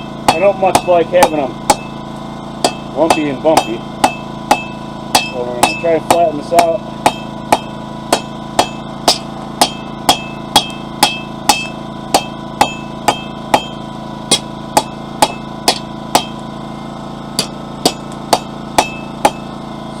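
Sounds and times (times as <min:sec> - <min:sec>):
hammer striking steel on anvil: 0:00.0 - 0:02.0, 0:02.6 - 0:16.4, 0:17.3 - 0:19.5.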